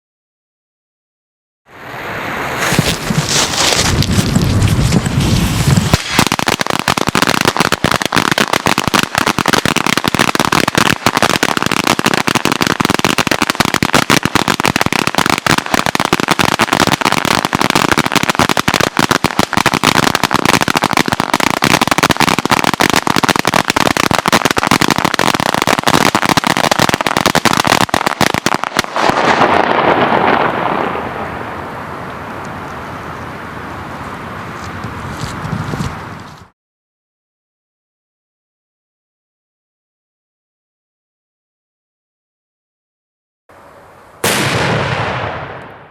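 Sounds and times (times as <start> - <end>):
firecrackers cracking: 2.6 - 32.4, 44.2 - 45.9.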